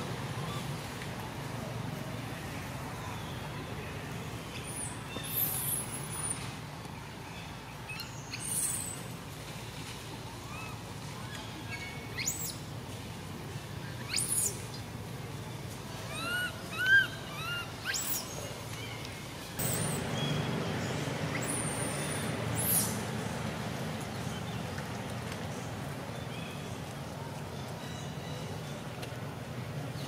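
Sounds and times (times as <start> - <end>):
steady outdoor hiss: 0.0 - 30.0.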